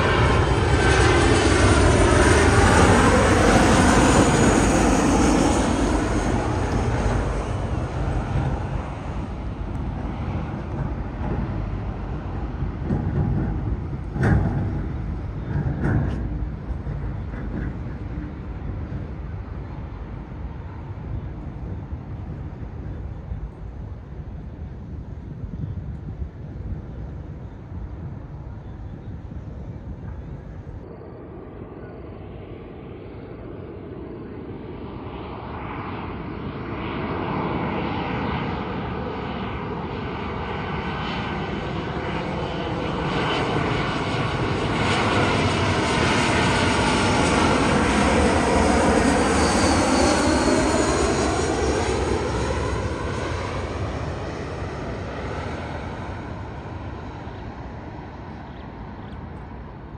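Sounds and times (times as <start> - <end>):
jet airliner passing close: 0.0 - 59.9.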